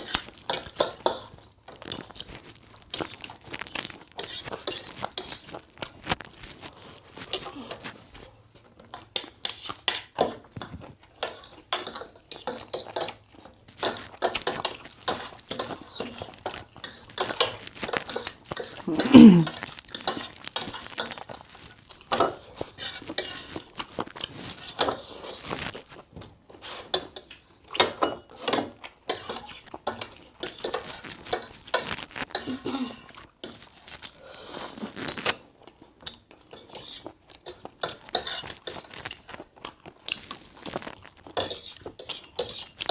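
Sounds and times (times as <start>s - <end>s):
cutlery clinking on a plate: 8.9s - 13.2s, 13.8s - 18.8s, 26.9s - 31.5s, 41.3s - 42.9s.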